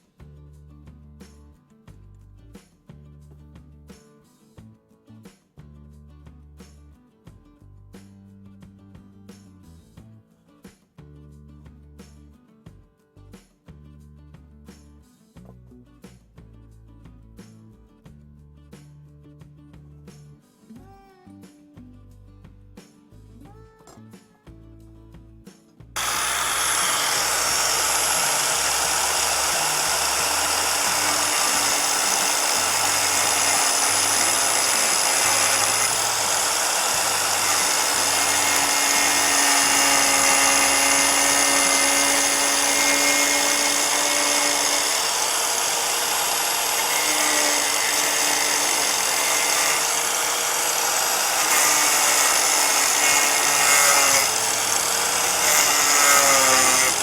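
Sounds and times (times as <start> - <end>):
angle grinder cutting plastic: 26.0 - 57.0.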